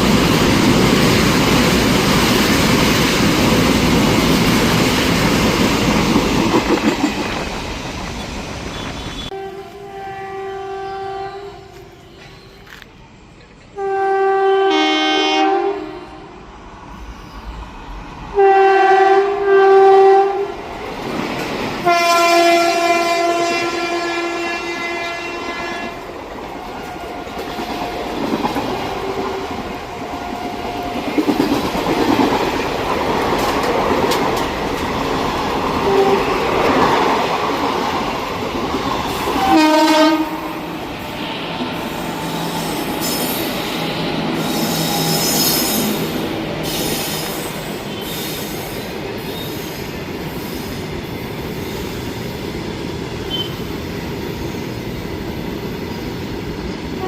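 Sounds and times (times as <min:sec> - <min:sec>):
passing train rumbling: 0:00.0 - 0:57.0
train horn blasts: 0:08.7 - 0:12.4, 0:13.8 - 0:16.4, 0:18.4 - 0:20.6, 0:21.8 - 0:26.1, 0:35.8 - 0:36.4, 0:39.1 - 0:40.7, 0:53.3 - 0:53.6.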